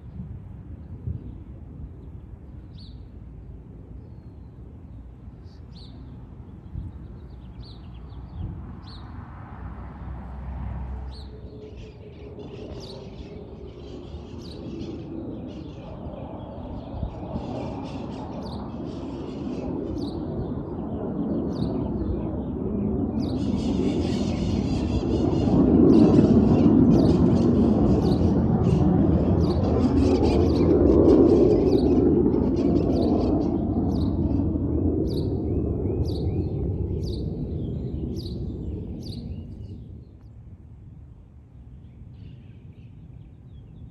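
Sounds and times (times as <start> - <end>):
aircraft rumble: 0.0 - 43.9
small birds chirping: 4.0 - 9.2, 11.1 - 40.4.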